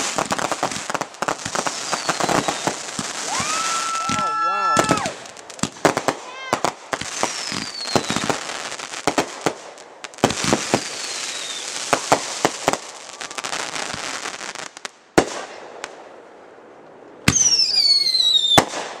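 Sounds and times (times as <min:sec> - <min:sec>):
firework whistles falling in pitch: 0:01.8 - 0:05.2, 0:11.0 - 0:11.7, 0:17.3 - 0:18.7
firework reports over crackling: 0:06.0 - 0:06.8.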